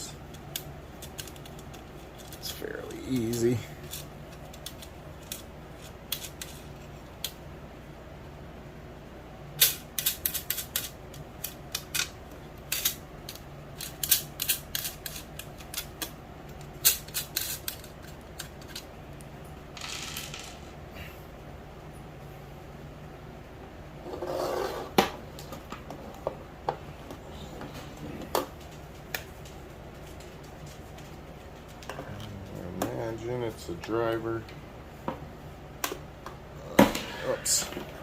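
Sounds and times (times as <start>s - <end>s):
low steady hum: 0.0s - 38.0s.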